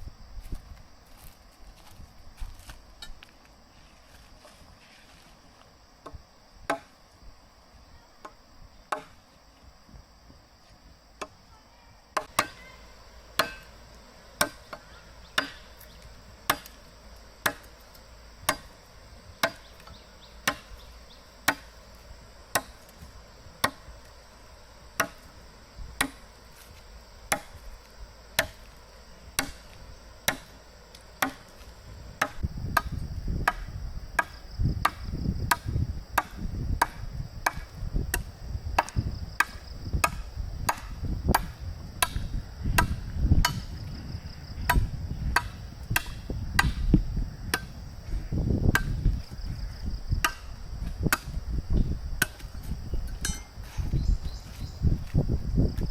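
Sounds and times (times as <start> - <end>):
high insect drone: 0.0 - 55.9
chopping strikes: 6.0 - 6.9, 8.2 - 9.2, 12.2 - 12.7, 13.4 - 13.7, 14.4 - 15.9, 16.5 - 16.8, 17.4 - 17.7, 18.4 - 18.7, 19.4 - 20.8, 21.4 - 21.7, 22.5 - 23.9, 25.0 - 25.3, 26.0 - 26.2, 27.3 - 27.6, 28.4 - 28.7, 29.4 - 30.6, 31.2 - 43.8, 44.7 - 46.9, 48.7 - 49.2, 50.2 - 50.5, 51.1 - 51.4.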